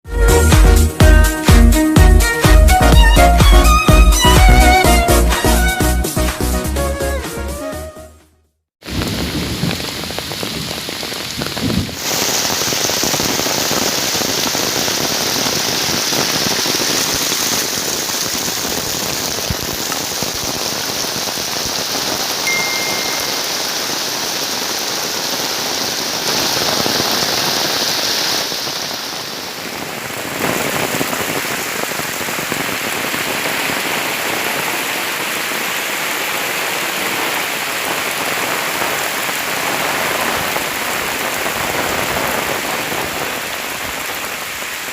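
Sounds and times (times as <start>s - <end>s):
heavy rain pouring: 0.1s - 7.6s, 8.8s - 44.9s.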